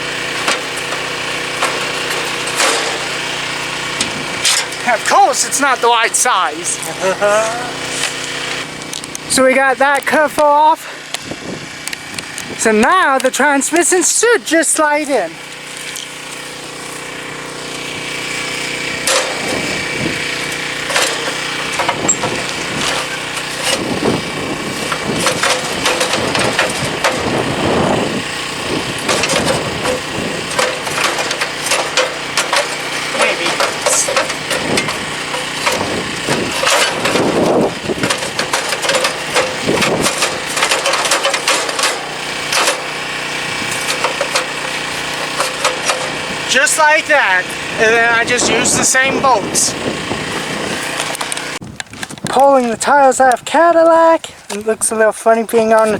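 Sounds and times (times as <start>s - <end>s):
metal knocks and clanks: 0.0s - 6.8s, 18.9s - 49.7s
steady hum: 0.0s - 51.6s.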